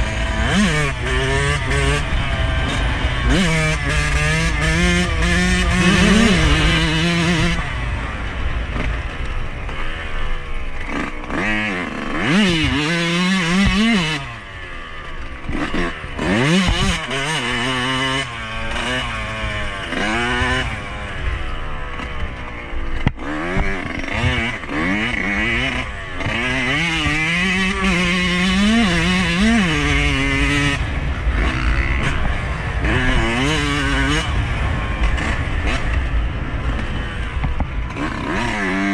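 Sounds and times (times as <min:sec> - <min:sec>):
two-stroke motorcycle engine revving: 0:00.0 - 0:38.9
low rumble: 0:30.4 - 0:38.8.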